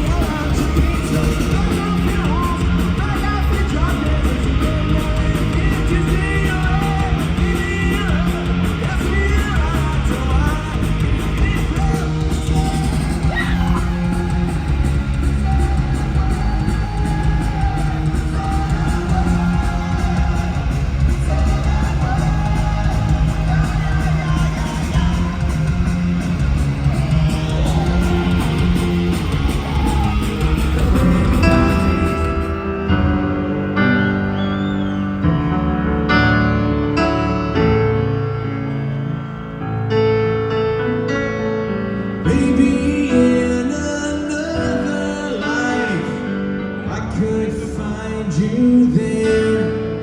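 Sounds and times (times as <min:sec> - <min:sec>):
crowd yelling: 0:00.0 - 0:03.9, 0:06.2 - 0:35.8
drums: 0:00.0 - 0:39.0, 0:39.8 - 0:50.0
distorted electric guitars: 0:00.0 - 0:40.6
bass: 0:00.0 - 0:50.0
shouted vocals: 0:12.1 - 0:31.9.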